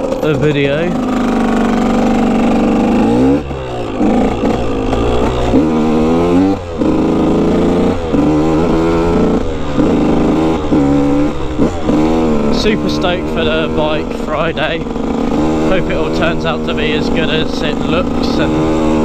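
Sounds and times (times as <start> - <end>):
dirt bike engine: 0.0 - 19.0.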